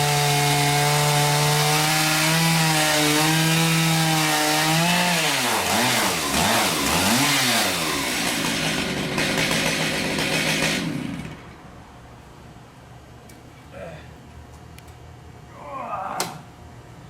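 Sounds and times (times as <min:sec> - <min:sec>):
chainsaw sawmill running: 0:00.0 - 0:11.7.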